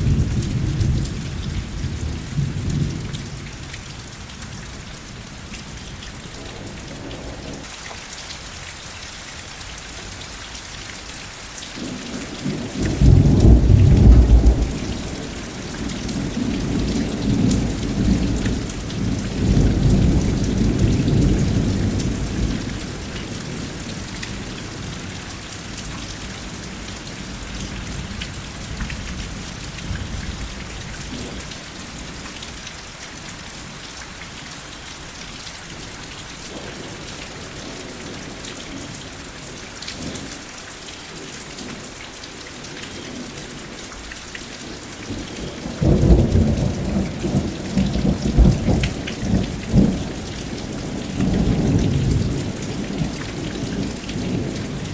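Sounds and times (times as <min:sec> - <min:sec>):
steady rain: 0:00.0 - 0:54.9
rolling thunder: 0:12.4 - 0:23.0, 0:45.6 - 0:54.8.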